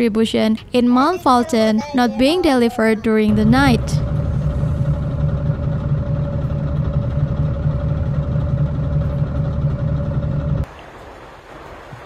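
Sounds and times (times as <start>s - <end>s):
steady whine: 2.2s - 10.7s
vehicle engine running: 3.1s - 10.7s.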